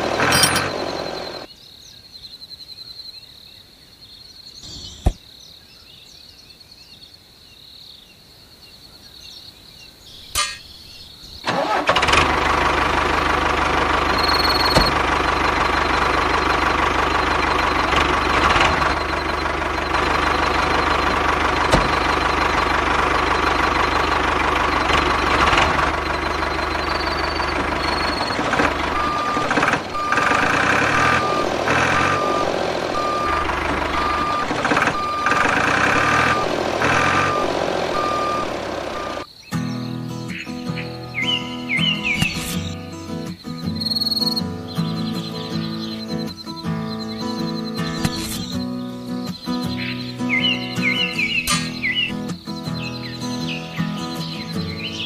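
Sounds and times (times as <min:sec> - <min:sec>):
reversing alarm beeping: 0:00.0 - 0:01.5, 0:14.0 - 0:39.3
tractor engine running: 0:00.0 - 0:01.5, 0:11.4 - 0:39.3, 0:41.2 - 0:55.0.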